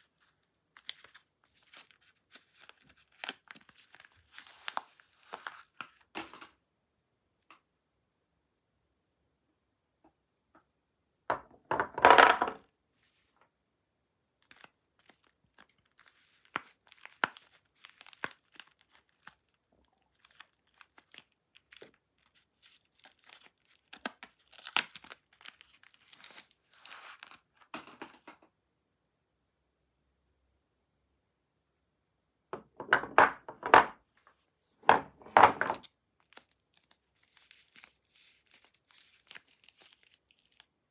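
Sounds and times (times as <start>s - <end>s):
wrapper crinkling: 0.0s - 6.0s, 14.4s - 27.4s, 35.7s - 40.7s
packaging ripping: 0.8s - 6.0s, 14.4s - 27.4s, 35.7s - 40.7s.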